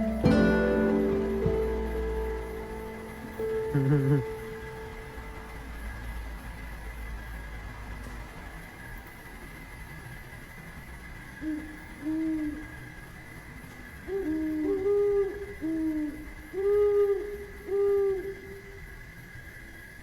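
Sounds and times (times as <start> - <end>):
bird hooting calls: 0.0 - 5.8, 11.4 - 12.8, 14.1 - 18.9
faint high-pitched drone: 0.0 - 6.8, 14.1 - 19.6.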